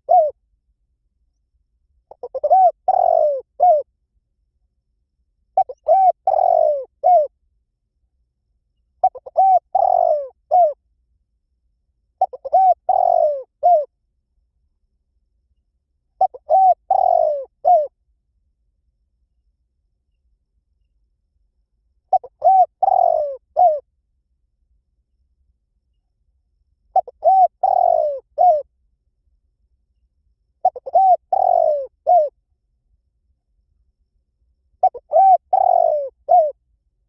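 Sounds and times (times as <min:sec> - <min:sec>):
dove cooing: 0:00.0 - 0:00.4, 0:02.1 - 0:03.9, 0:05.6 - 0:07.3, 0:09.0 - 0:10.8, 0:12.2 - 0:13.9, 0:16.2 - 0:17.9, 0:22.1 - 0:23.8, 0:26.9 - 0:28.7, 0:30.6 - 0:32.4, 0:34.8 - 0:36.6.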